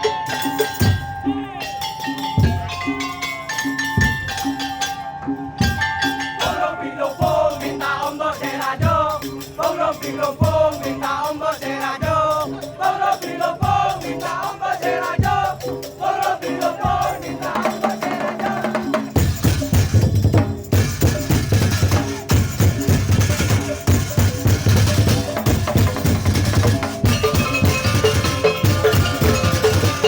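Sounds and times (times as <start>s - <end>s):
wavering melody line: 0.0s - 8.8s, 23.7s - 30.0s
loud full percussion: 0.0s - 30.0s.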